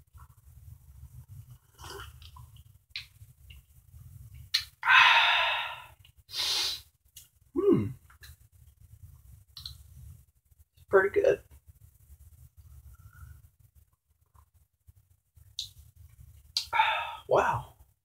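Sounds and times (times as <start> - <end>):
man slurping coffee: 1.6 - 2.5, 5.1 - 6.8
breathy exhale: 4.8 - 6.8, 16.7 - 17.3
short falling vocal sound: 7.6 - 8.0.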